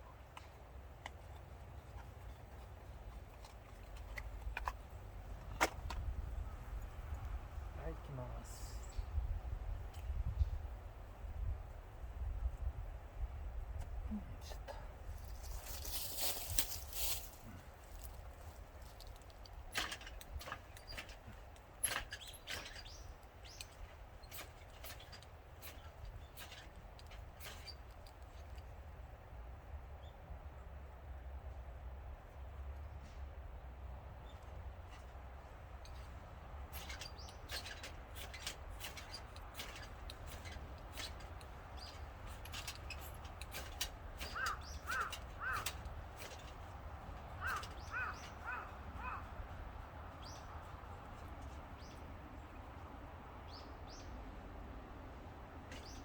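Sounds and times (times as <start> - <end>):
fire-starter rod scraping: 0.4 - 8.2, 14.6 - 28.9, 34.2 - 52.6, 55.6 - 56.0
crow cawing: 44.3 - 45.8, 47.4 - 49.4.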